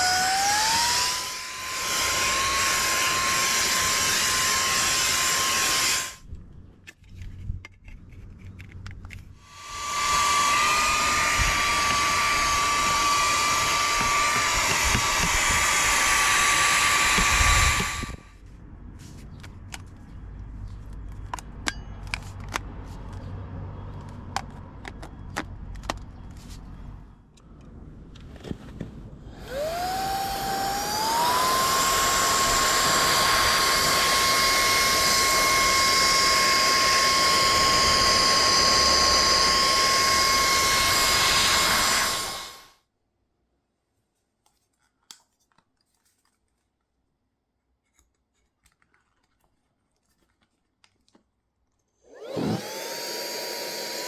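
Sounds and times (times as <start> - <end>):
handheld vacuum motor whining: 0.0 - 6.2, 9.4 - 18.3, 29.3 - 42.7, 52.0 - 54.0.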